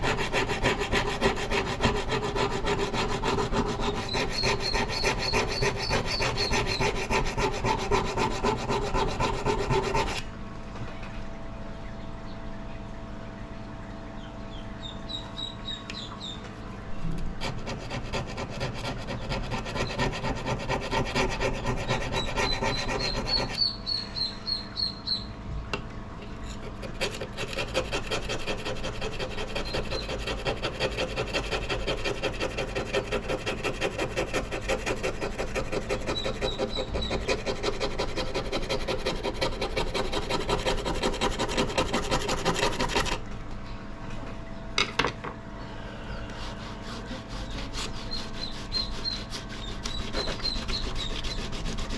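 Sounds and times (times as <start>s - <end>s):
abrasive scrubbing on metal: 0.0s - 10.2s, 17.4s - 23.8s, 26.5s - 43.2s, 46.4s - 51.9s
birds chirping: 11.8s - 16.7s, 23.0s - 25.4s, 47.4s - 51.4s.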